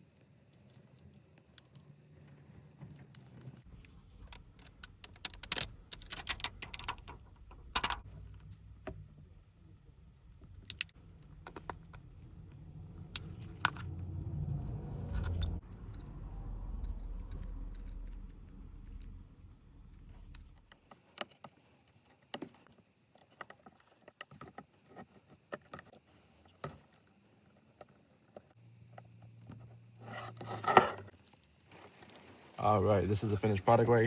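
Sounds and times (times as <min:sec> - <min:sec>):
small metal tools clicking and clinking: 0:03.8 - 0:08.1
low rumble: 0:07.0 - 0:20.7.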